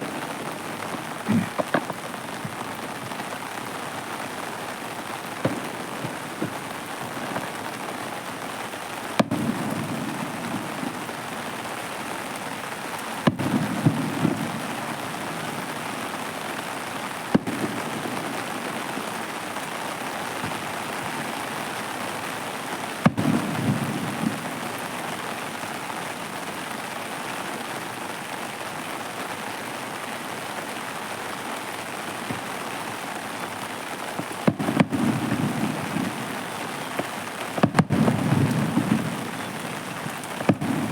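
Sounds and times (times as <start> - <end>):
fireworks bangs: 0.0 - 11.7, 13.2 - 19.6, 23.0 - 24.7, 33.7 - 40.9.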